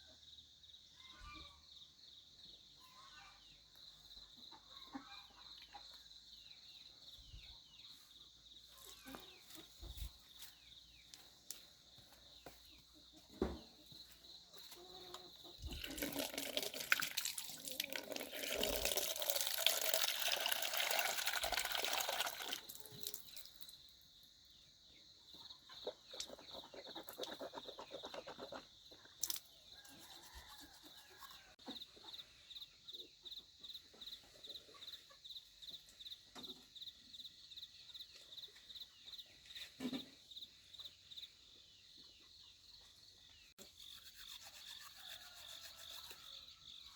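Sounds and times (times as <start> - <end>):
water running into a basin: 15.7 - 23.7.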